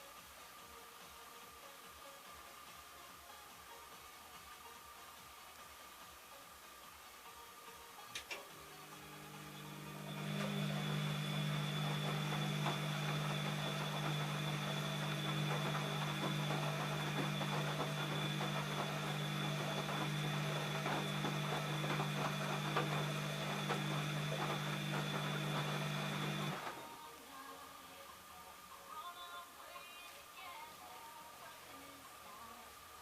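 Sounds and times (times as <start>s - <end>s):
washing machine running: 8.4s - 26.9s.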